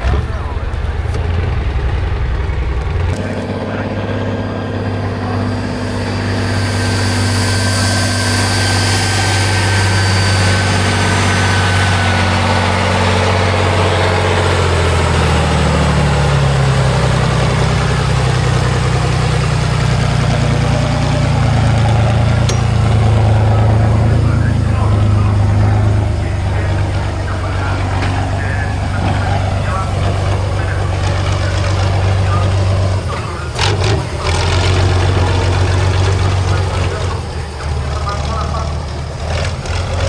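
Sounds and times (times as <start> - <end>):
heavy truck engine running: 0.0 - 40.0.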